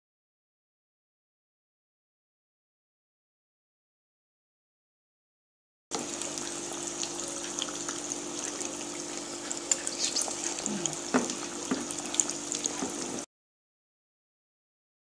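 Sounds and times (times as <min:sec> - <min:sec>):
faint steady hum: 0:05.9 - 0:13.2
fritters deep-frying in oil: 0:05.9 - 0:13.3.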